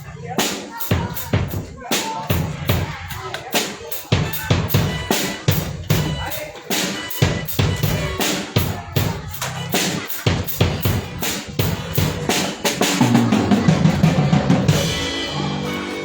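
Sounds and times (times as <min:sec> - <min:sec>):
drum kit steady beat: 0:00.0 - 0:16.0
bass drum thumps: 0:04.1 - 0:06.3, 0:07.2 - 0:09.7, 0:10.3 - 0:12.4.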